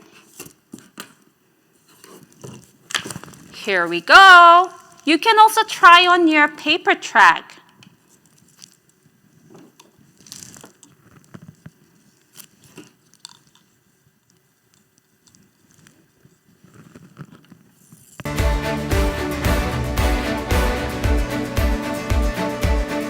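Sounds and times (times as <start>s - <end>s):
roller toy clicking and rustling: 8.2s - 18.3s
music: 18.3s - 23.0s.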